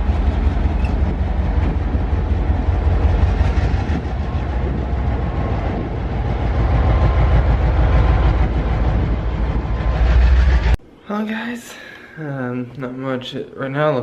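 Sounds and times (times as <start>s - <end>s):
rail car noise: 0.0s - 10.8s
train deep rumble: 0.0s - 10.8s.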